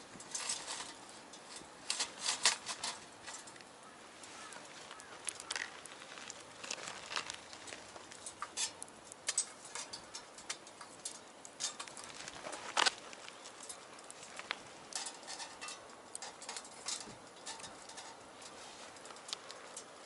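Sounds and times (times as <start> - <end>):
faint fire hiss: 0.0 - 20.0
wood fire crackling: 0.0 - 20.0.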